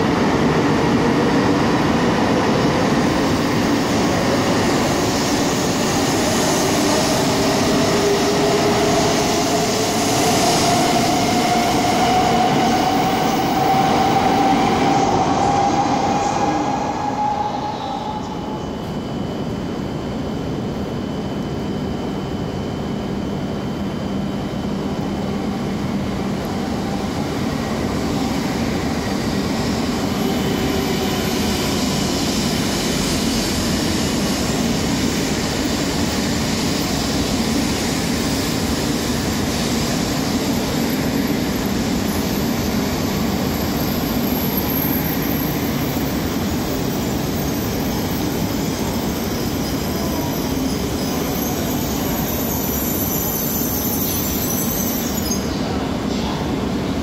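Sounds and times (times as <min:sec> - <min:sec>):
faint high whine: 0:13.2 - 0:27.9
train wheels rumbling on rail: 0:24.7 - 0:57.0.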